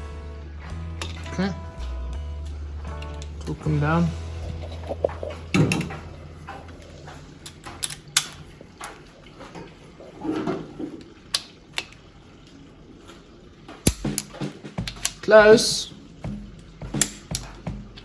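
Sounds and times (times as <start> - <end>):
hand tools clicking on metal: 4.4 - 9.7, 13.7 - 15.8, 16.6 - 18.0.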